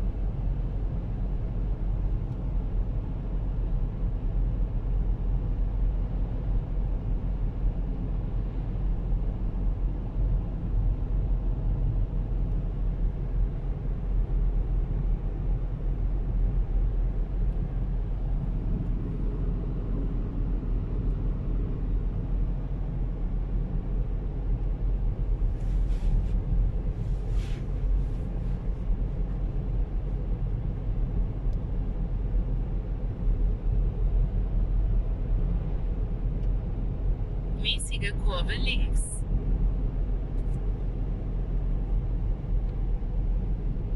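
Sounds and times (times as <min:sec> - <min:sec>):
car driving on road: 0:00.0 - 0:43.9.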